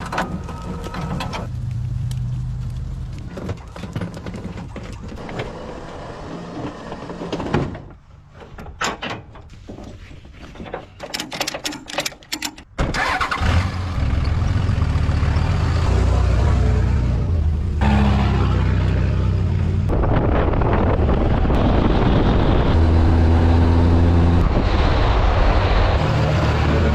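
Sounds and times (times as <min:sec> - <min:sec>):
engine low rumble: 0:00.0 - 0:08.8, 0:12.9 - 0:26.9
engine running loud: 0:13.4 - 0:26.9.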